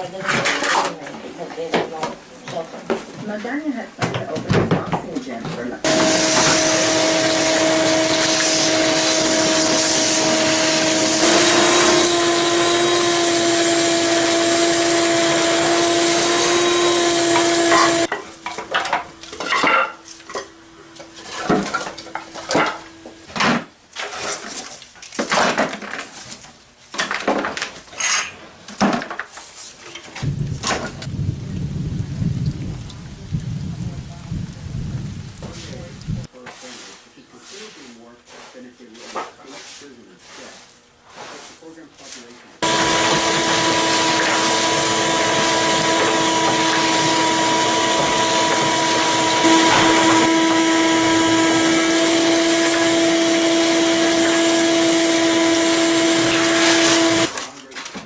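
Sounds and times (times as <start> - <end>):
shop vacuum humming: 5.8 - 23.4, 42.6 - 57.4
low rumble: 30.2 - 36.3.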